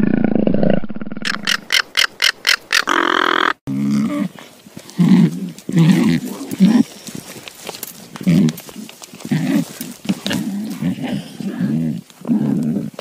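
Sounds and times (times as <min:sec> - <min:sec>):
low throaty grunting: 0:03.0 - 0:07.0.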